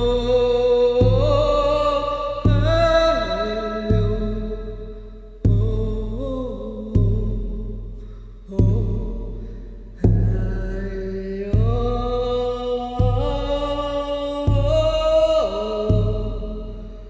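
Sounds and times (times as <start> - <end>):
wordless chanting voice: 0.0 - 7.9, 8.5 - 17.0
deep drum beats: 0.0 - 17.0.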